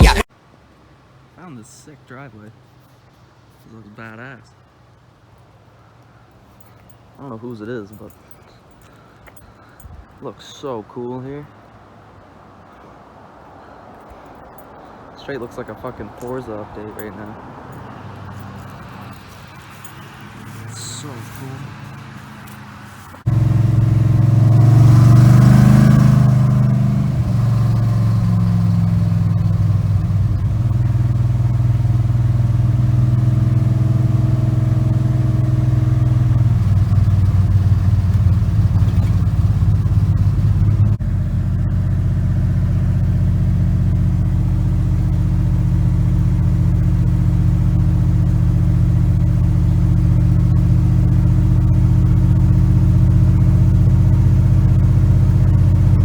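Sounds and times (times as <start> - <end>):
pickup truck engine revving and running: 0.0 - 0.3, 17.8 - 56.0.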